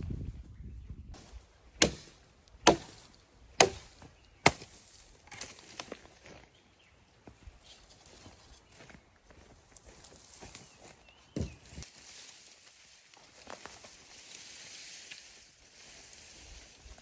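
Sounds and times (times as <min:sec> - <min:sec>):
axe chopping wood: 0:01.8 - 0:05.5.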